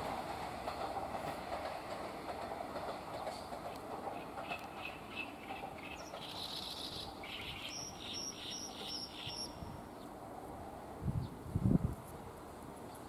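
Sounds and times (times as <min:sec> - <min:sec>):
small bird singing: 0:04.5 - 0:10.1.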